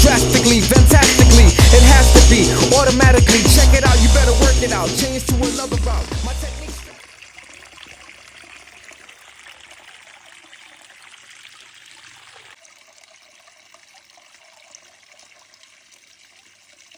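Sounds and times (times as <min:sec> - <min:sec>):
water trickling into a pond: 0:06.9 - 0:16.9.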